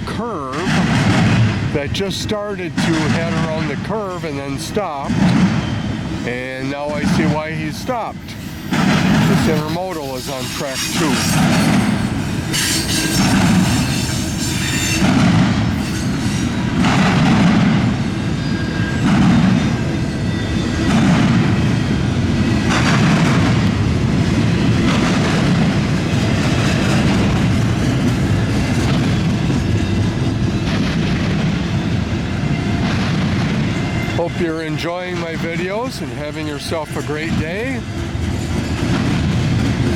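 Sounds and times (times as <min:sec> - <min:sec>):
train wheels rumbling on rail: 0:00.0 - 0:39.9
harsh high wheel noise: 0:01.6 - 0:17.2.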